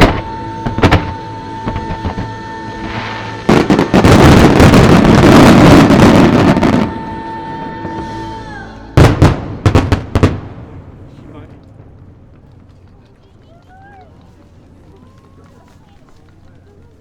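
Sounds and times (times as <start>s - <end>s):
held music note: 0.0s - 10.3s
loud fireworks bangs: 0.0s - 12.3s
fireworks bursts and crackles: 0.0s - 17.0s.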